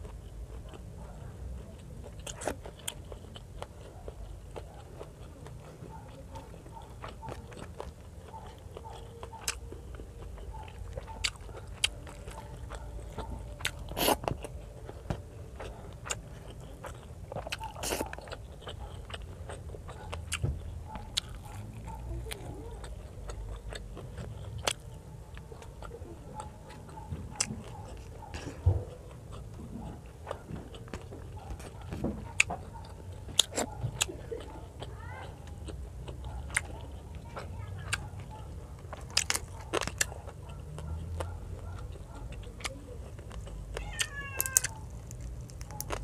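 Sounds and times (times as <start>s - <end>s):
person chewing: 0.0s - 0.9s, 1.6s - 46.0s.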